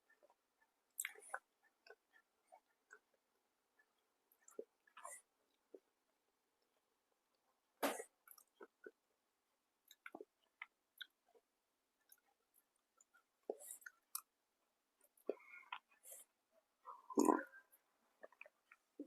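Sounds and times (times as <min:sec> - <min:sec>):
person chewing food: 0:00.1 - 0:05.9, 0:08.2 - 0:09.0, 0:09.8 - 0:14.4, 0:15.0 - 0:19.0.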